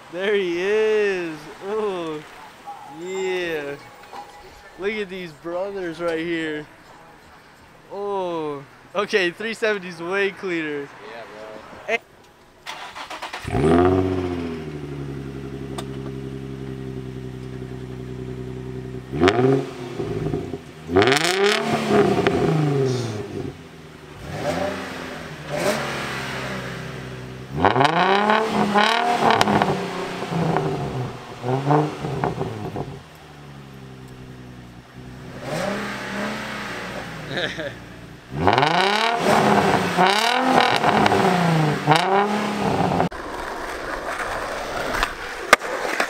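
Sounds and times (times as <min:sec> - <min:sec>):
car engine idling and revving: 0:12.2 - 0:43.2.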